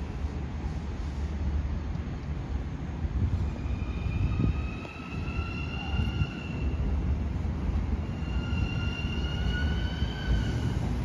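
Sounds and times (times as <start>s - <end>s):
train rumble: 0.0s - 11.0s
high rising squeal: 3.4s - 7.0s, 7.8s - 10.9s.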